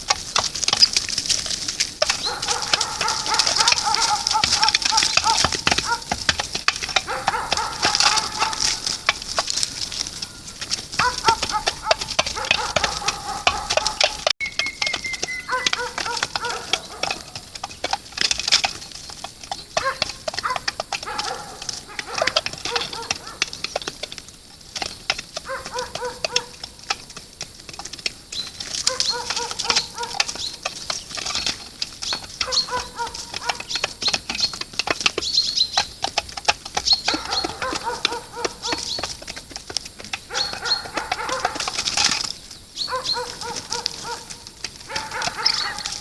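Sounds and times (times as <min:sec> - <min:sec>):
high chirping: 0:14.4 - 0:17.4.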